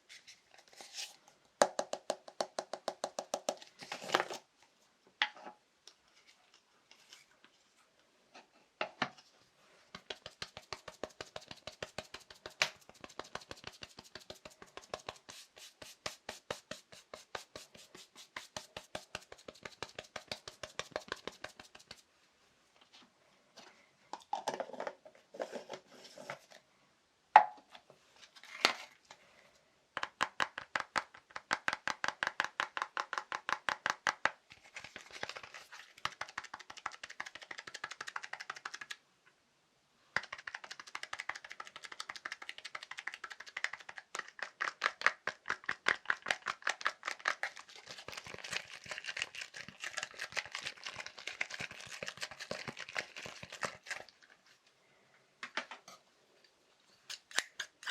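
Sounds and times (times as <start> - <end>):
fast tapping on small objects: 1.6 - 3.6, 10.0 - 22.0, 30.0 - 39.0, 40.2 - 54.0.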